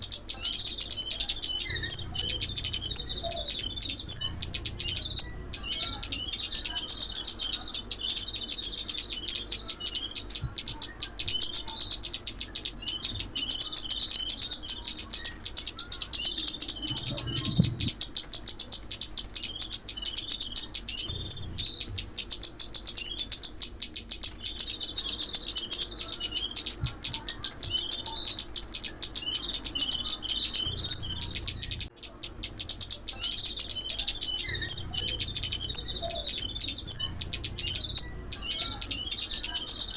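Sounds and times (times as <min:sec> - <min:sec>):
sunbird chirps and trills: 0:00.0 - 0:39.9
thin steady high whistle: 0:18.6 - 0:31.9, 0:32.7 - 0:39.9.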